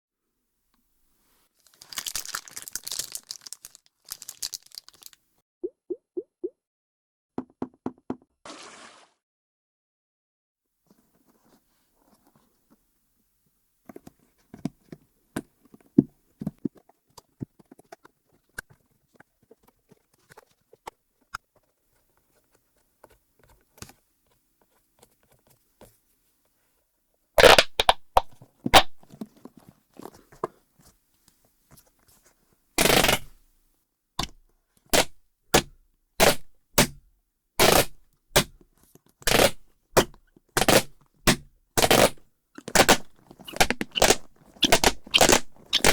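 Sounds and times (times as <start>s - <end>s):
fidget toy clicks and pops: 27.4s - 28.9s, 42.7s - 45.9s.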